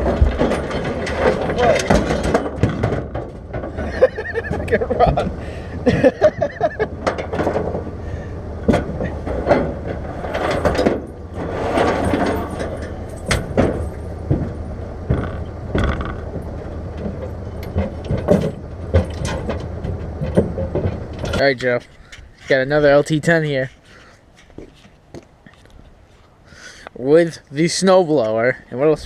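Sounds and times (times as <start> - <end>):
metal knocks and rattles: 0.0 - 8.0, 8.6 - 25.2
vehicle engine running: 0.0 - 22.2.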